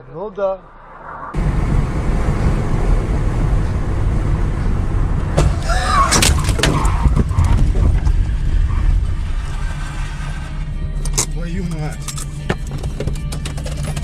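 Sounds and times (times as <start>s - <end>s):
car engine and road noise: 0.0s - 14.0s
short curving squeal: 8.4s - 10.7s.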